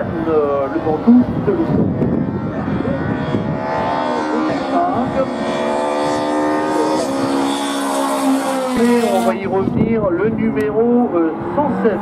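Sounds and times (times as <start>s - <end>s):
race car engine at high revs: 0.0s - 12.0s.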